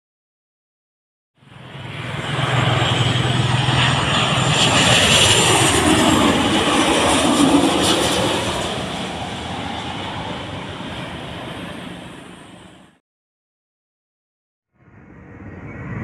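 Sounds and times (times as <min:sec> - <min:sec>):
jet airliner passing overhead: 0:01.4 - 0:13.0, 0:14.8 - 0:16.0.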